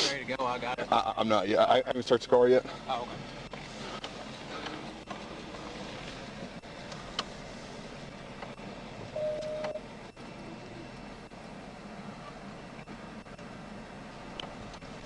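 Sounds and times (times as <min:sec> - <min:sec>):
vehicle noise: 0:00.0 - 0:15.0
short single-tone beep: 0:09.2 - 0:09.8.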